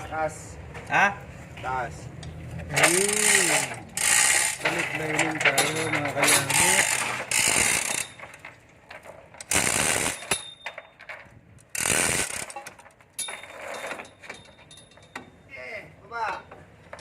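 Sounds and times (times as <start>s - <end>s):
ratchet tool bursts: 2.8s - 4.6s, 6.3s - 8.2s, 9.4s - 10.5s, 11.7s - 12.6s.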